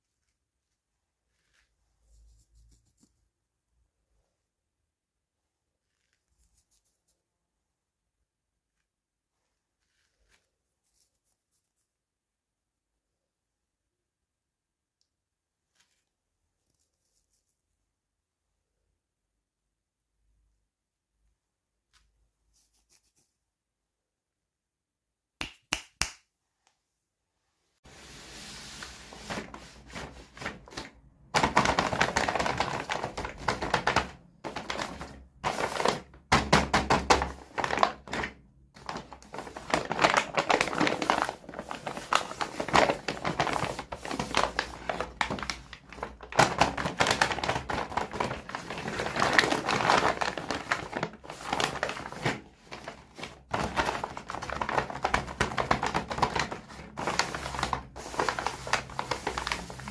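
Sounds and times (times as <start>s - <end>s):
toy packaging crackling: 37.0s - 59.9s.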